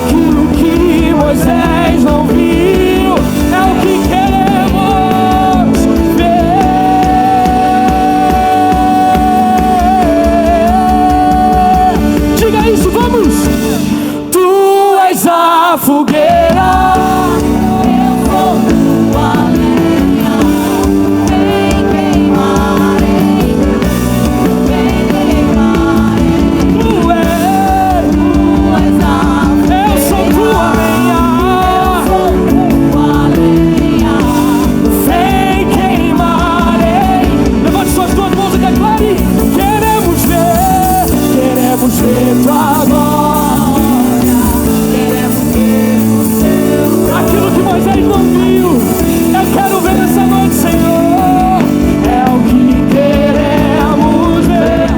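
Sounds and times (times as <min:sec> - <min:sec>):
drum kit: 0:00.0 - 0:54.9
gospel band playing: 0:00.0 - 0:54.9
people singing: 0:00.0 - 0:54.9.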